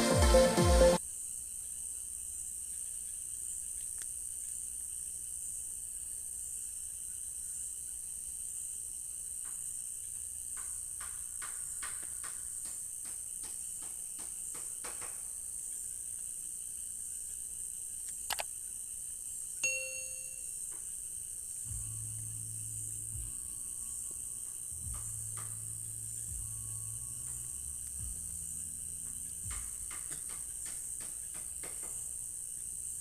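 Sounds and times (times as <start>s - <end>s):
crickets chirring: 1.0s - 33.0s
quick clicking calls: 18.0s - 18.5s.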